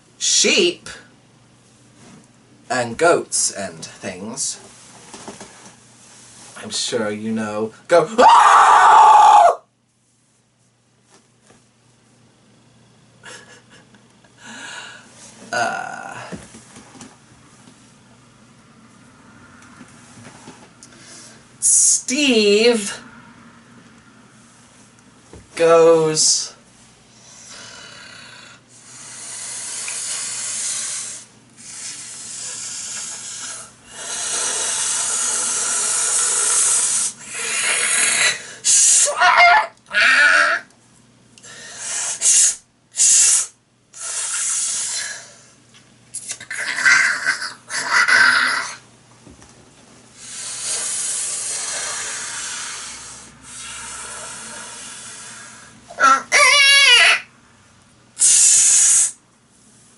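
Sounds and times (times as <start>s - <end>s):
man screeching shrilly: 8.1s - 9.6s, 37.3s - 40.7s, 55.9s - 57.3s
person making breathy hisses: 27.1s - 39.5s, 41.4s - 45.6s, 50.2s - 55.8s, 58.2s - 59.2s.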